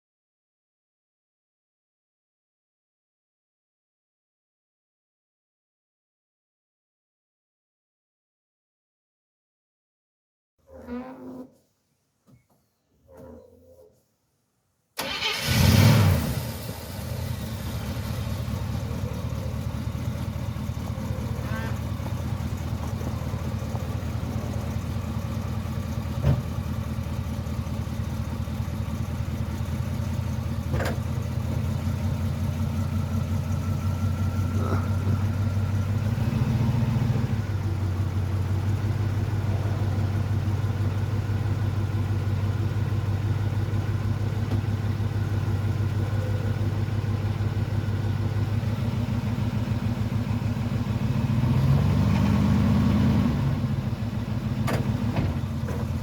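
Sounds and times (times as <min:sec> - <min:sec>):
engine idling: 0:15.0 - 0:56.0.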